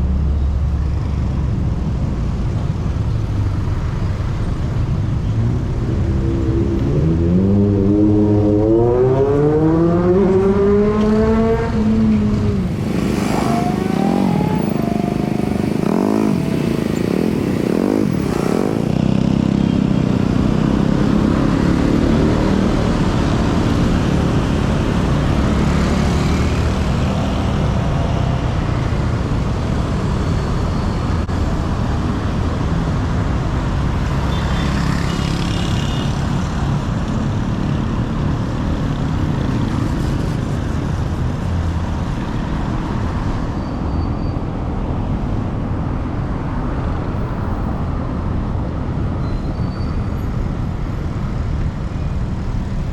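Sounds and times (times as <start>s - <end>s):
steady traffic rumble: 0.0s - 52.9s
vehicle engine revving: 6.1s - 27.6s.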